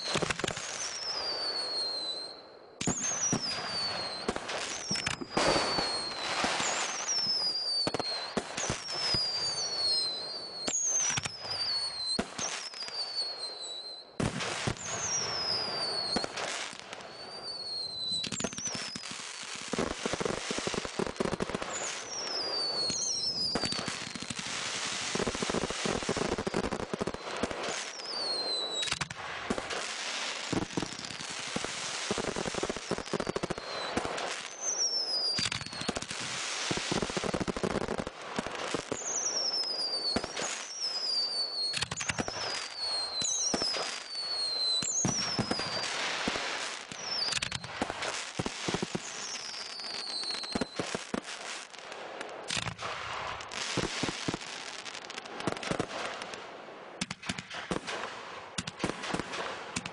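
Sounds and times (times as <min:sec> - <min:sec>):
fireworks crackling: 0:00.0 - 0:59.9
whistles falling in pitch: 0:00.8 - 0:14.1, 0:14.8 - 0:16.4, 0:21.7 - 0:24.2
firework bangs: 0:02.8 - 0:13.2, 0:14.2 - 0:56.4, 0:57.0 - 0:59.9.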